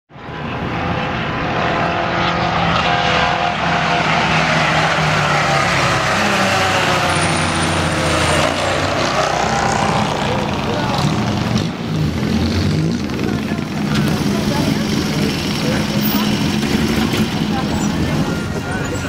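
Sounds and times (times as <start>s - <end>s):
car engines revving: 0.1s - 19.0s.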